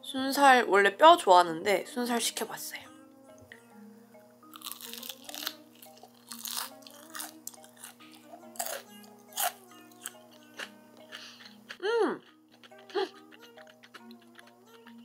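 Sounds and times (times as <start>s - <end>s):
light background music: 0.0s - 15.0s
crunching fried chicken: 4.5s - 15.0s.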